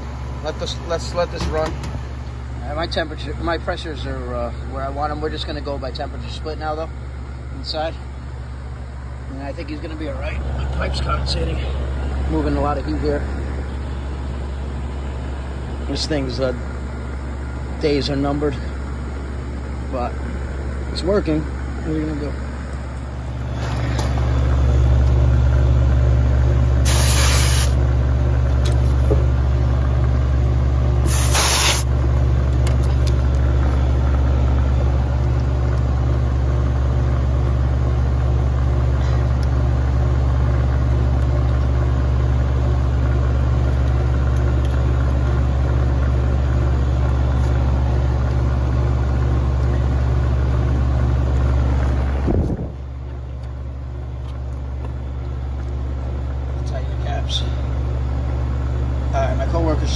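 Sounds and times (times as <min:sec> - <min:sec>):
air conditioner compressor hum: 0:00.0 - 0:59.9
short hisses: 0:26.8 - 0:27.8, 0:31.0 - 0:31.9.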